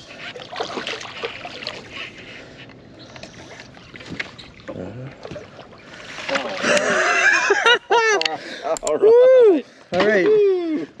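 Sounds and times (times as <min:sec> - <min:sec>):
water splashing against boat: 0:00.0 - 0:07.7.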